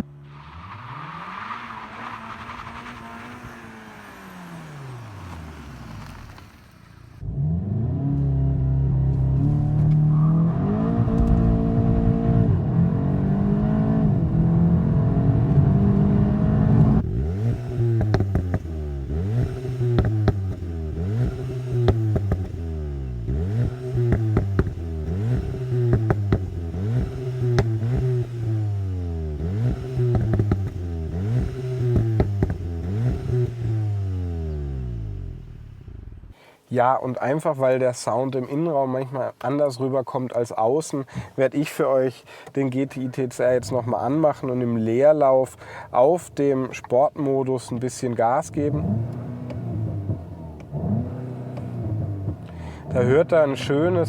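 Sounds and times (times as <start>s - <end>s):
exhaust crackles: 0.0s - 9.9s, 16.2s - 36.5s, 47.6s - 54.0s
car engine revving: 0.0s - 36.3s, 48.6s - 54.0s.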